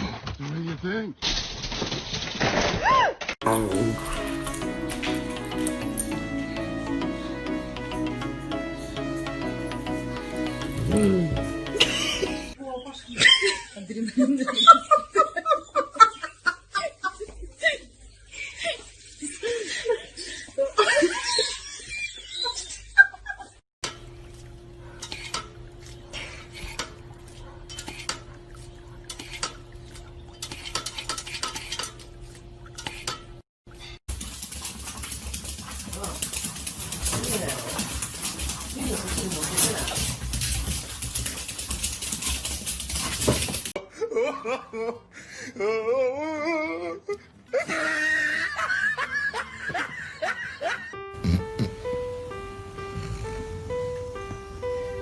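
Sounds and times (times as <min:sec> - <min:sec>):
wavering drawn-out voice: 0:10.8 - 0:11.4
hearty laughter with whoops: 0:13.2 - 0:23.6, 0:43.8 - 0:51.0.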